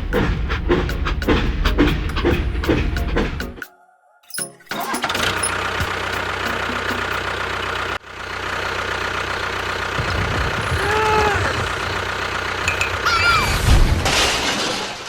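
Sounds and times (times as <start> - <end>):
small engine idling: 4.7 - 13.1.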